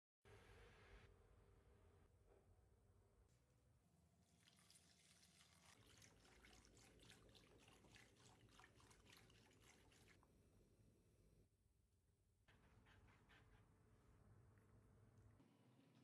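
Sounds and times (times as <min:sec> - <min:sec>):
liquid pouring and dripping: 0:04.2 - 0:10.6.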